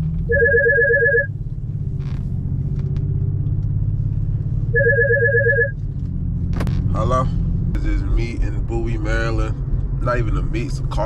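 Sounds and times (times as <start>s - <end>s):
car engine droning: 0.0s - 11.0s
phone ringtone trill: 0.3s - 1.3s, 4.8s - 5.7s.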